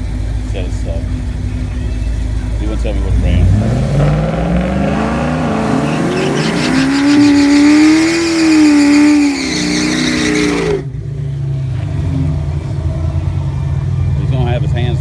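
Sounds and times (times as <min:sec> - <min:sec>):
race car engine at high revs: 0:00.0 - 0:11.0.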